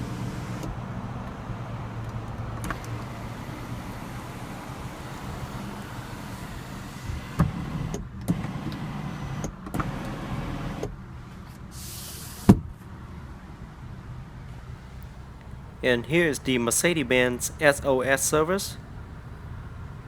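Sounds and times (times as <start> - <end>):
moonroof motor whirring: 0.0 - 6.9.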